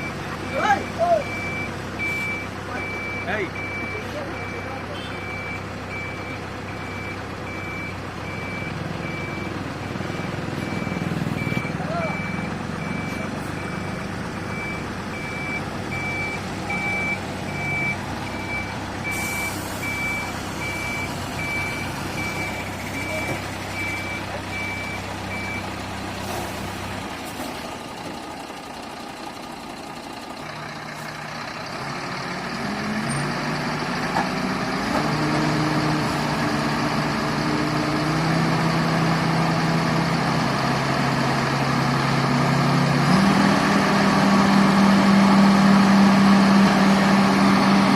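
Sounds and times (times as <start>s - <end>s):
reversing alarm beeping: 0.0s - 25.8s
diesel engine running: 0.0s - 47.9s
heavy diesel engine revving: 0.0s - 47.9s.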